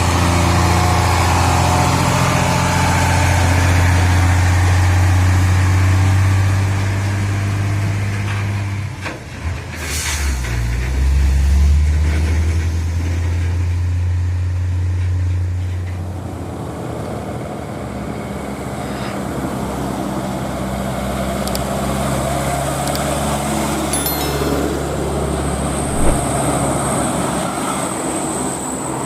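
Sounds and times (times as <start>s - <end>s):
truck diesel engine under load: 0.0s - 23.9s
road noise: 15.6s - 29.0s.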